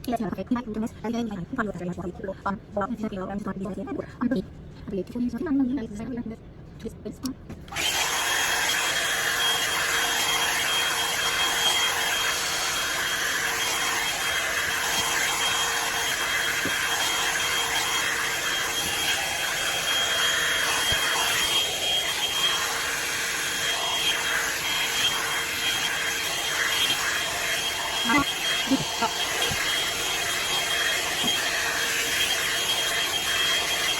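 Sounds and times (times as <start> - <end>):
blow-dryer brush running: 7.5 - 33.9.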